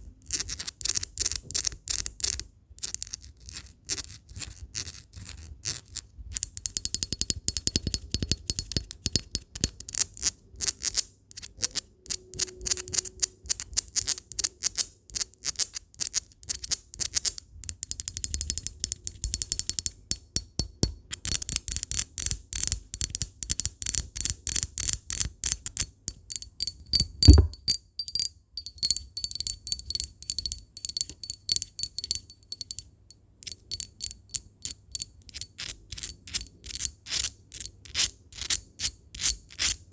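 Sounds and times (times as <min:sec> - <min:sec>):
rapid tapping on glass: 0:06.3 - 0:09.8, 0:23.0 - 0:35.4
heavier knock: 0:27.2 - 0:27.6.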